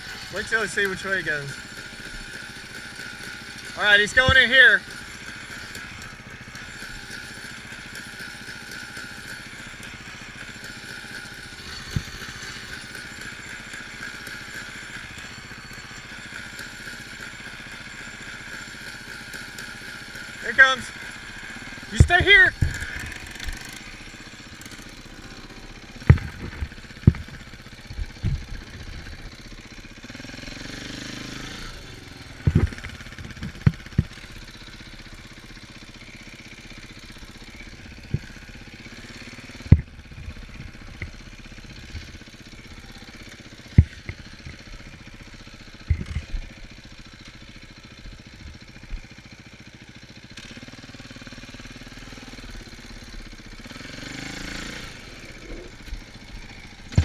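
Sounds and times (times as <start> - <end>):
dirt bike engine idling: 0.0 - 57.0
sharp low thumps: 26.0 - 29.2, 32.3 - 34.2.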